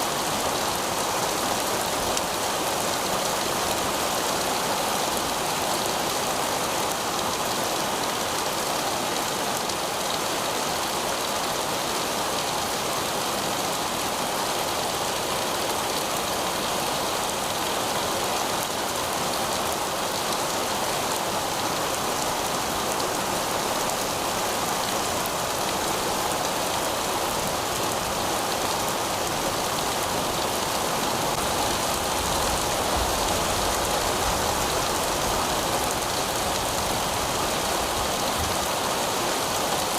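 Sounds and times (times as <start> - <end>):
heavy rain on pavement: 0.0 - 39.9.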